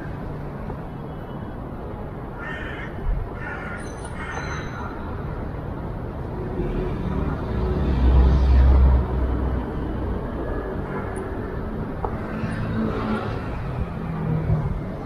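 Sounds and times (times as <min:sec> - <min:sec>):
crow cawing: 0:02.4 - 0:04.6.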